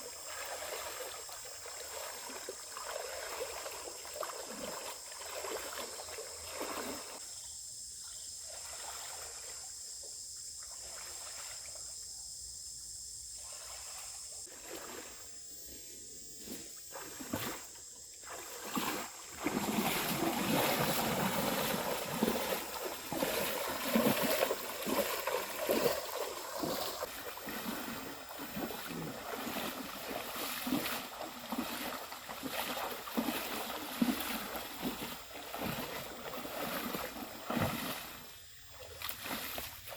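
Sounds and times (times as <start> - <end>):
water splashing and trickling: 0.0 - 7.2, 8.1 - 9.7, 10.6 - 11.9, 13.4 - 15.3, 16.8 - 39.9
high-pitched tone: 14.8 - 19.0.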